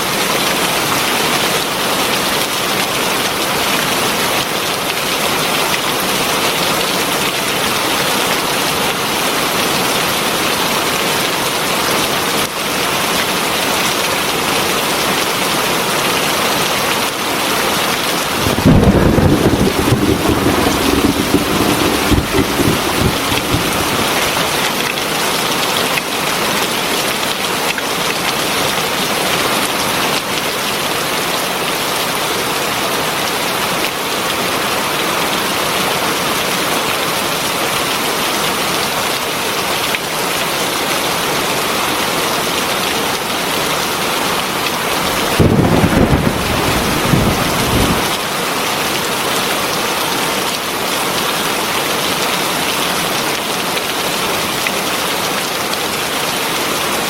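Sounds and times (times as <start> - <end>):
heavy rain pouring: 18.0 - 25.4, 42.0 - 57.0
thunder rumbling: 18.2 - 24.6, 45.0 - 48.1.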